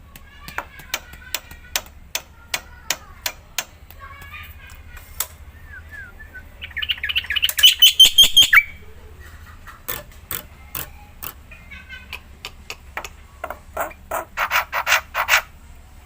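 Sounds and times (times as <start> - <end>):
harsh rasping bird calls: 4.0 - 15.6
bird chattering song: 5.4 - 10.0
bird sharp clicks: 6.7 - 8.7.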